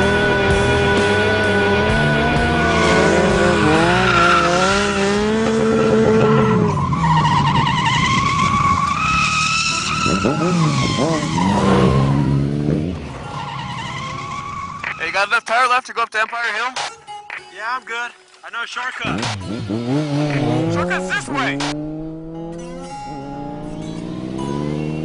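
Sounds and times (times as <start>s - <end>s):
vehicle engines revving: 0.0s - 15.2s, 19.0s - 25.0s
tires squealing: 0.0s - 15.5s.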